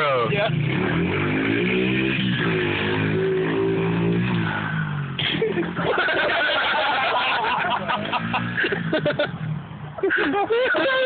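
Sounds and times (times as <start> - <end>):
small engine revving: 0.0 - 5.9.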